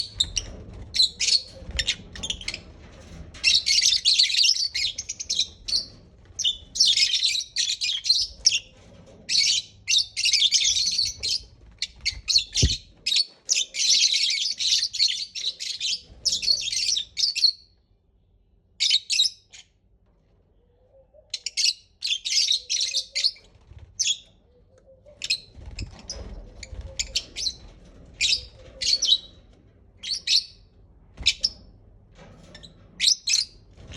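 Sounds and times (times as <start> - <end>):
lovebirds chattering and chirping: 21.2 - 29.4.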